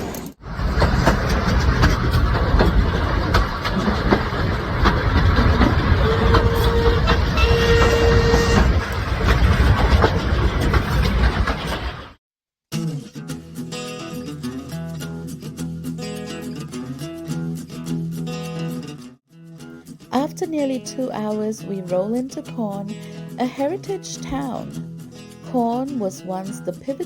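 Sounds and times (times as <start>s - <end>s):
train wheels clickety-clack: 0.0s - 12.1s.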